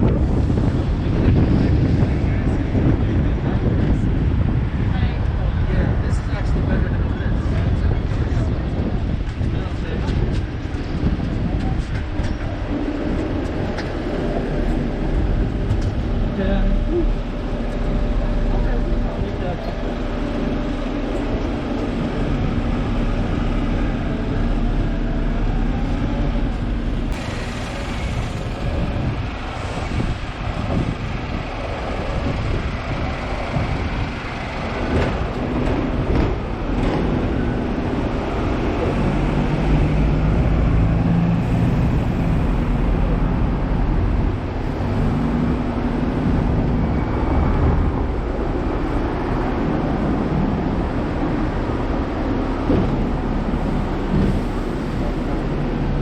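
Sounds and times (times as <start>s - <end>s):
electric tram running on rails: 0.0s - 56.0s.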